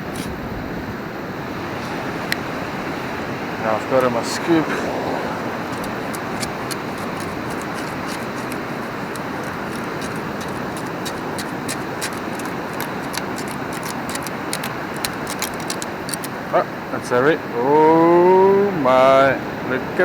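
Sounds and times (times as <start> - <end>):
sand and shells rattling in scoop: 0.0 - 0.3, 5.5 - 16.3.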